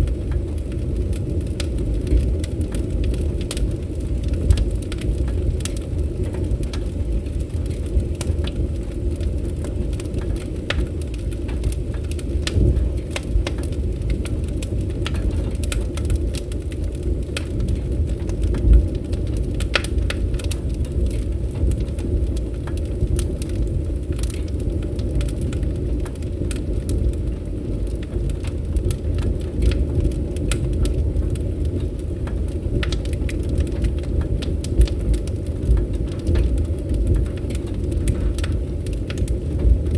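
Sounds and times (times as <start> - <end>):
campfire rumble: 0.0 - 39.9
fire crackling and popping: 0.0 - 39.9.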